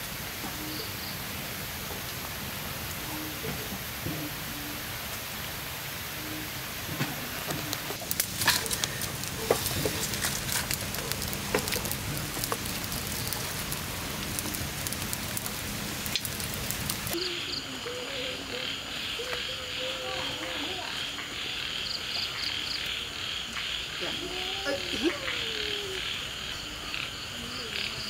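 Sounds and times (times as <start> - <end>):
steady rain: 0.0 - 28.0
insects chirping: 0.2 - 28.0
frogs calling: 5.8 - 28.0
sharp pops and crackles: 6.8 - 17.2.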